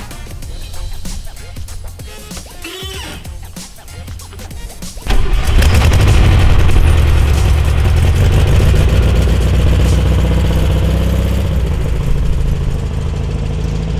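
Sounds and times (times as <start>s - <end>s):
car engine pulling away: 5.0s - 13.9s.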